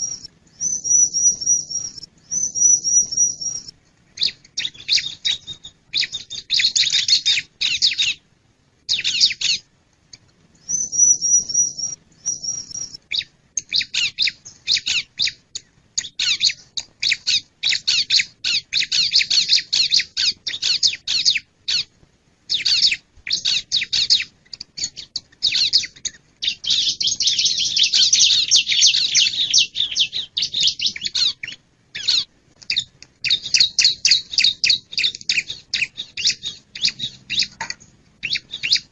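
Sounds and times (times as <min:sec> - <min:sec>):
high bird whistle: 0:00.0 - 0:08.2, 0:10.6 - 0:15.4, 0:22.5 - 0:37.6
bird chirping song: 0:00.0 - 0:21.9, 0:22.5 - 0:38.9.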